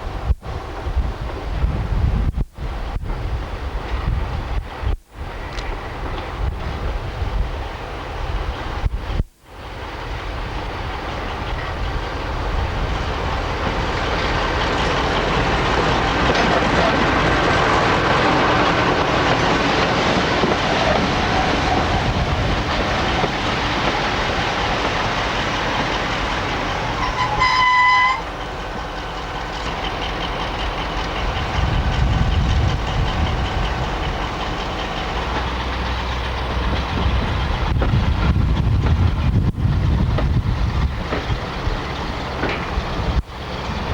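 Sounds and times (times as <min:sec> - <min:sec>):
diesel train running on rails: 0:00.0 - 0:43.9
train horn: 0:26.8 - 0:28.6.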